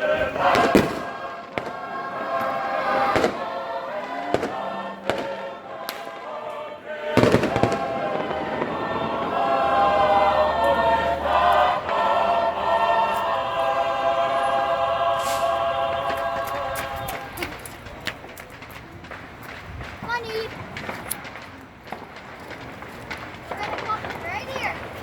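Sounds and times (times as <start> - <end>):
group of voices singing: 0.0 - 18.0
fireworks bangs: 0.0 - 25.0.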